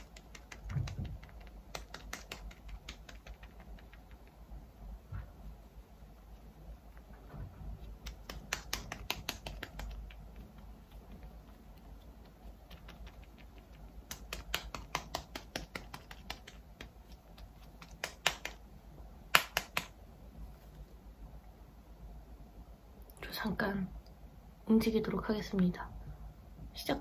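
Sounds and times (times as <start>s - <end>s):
light rapid tapping on skin: 0.0s - 4.5s, 7.8s - 18.7s, 19.3s - 20.0s.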